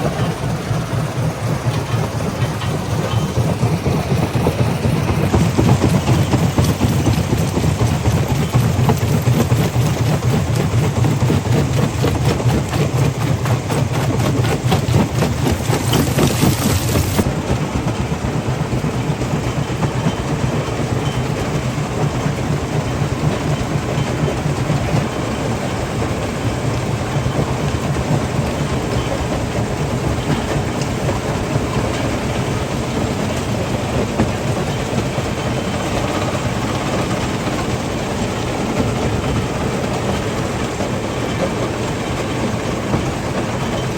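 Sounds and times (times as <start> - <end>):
rock crusher rattling and knocking: 0.0 - 17.3.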